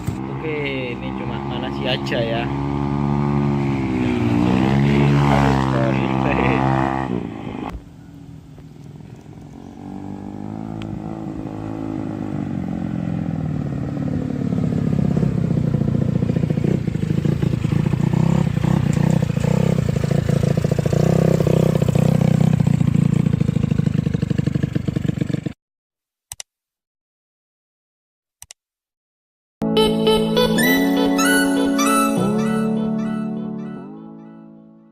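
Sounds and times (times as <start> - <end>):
scooter engine running: 0.0 - 7.1, 9.0 - 25.6.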